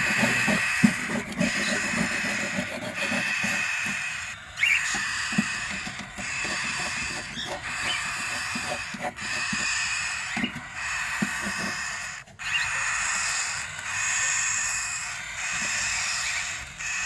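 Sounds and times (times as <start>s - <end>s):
soft scratching taps: 0.0s - 11.8s
bird chirps: 0.0s - 17.0s.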